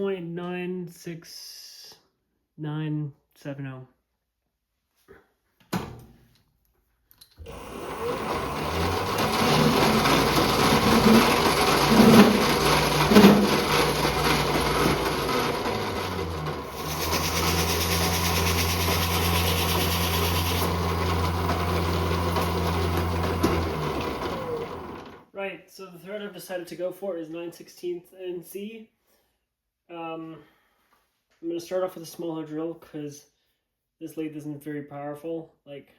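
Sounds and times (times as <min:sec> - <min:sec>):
lathe motor humming: 0:07.5 - 0:25.2.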